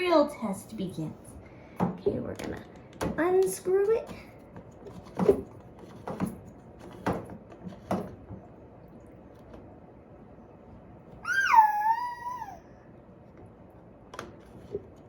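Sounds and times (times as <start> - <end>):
cat meowing: 11.2 - 12.6.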